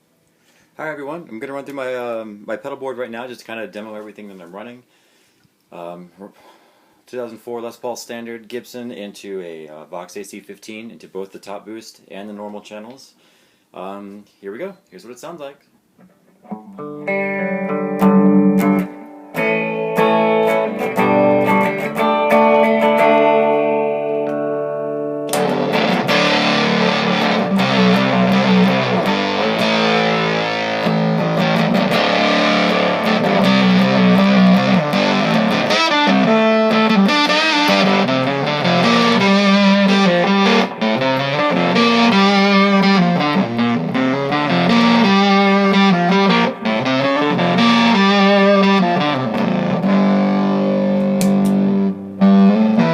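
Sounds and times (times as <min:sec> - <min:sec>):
electric guitar playing: 0:16.0 - 0:52.9.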